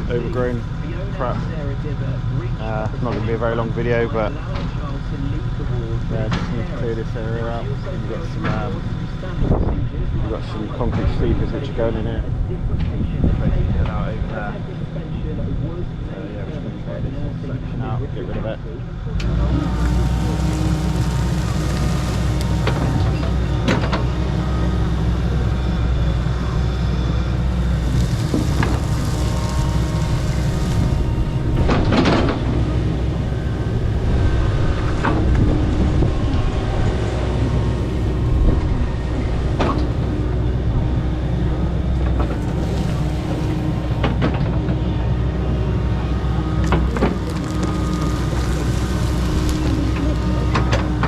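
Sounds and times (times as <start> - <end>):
excavator diesel engine under load: 18.9 - 51.0
vegetation cracking and crunching: 19.6 - 23.8, 27.4 - 32.3, 42.1 - 44.6, 46.6 - 51.0.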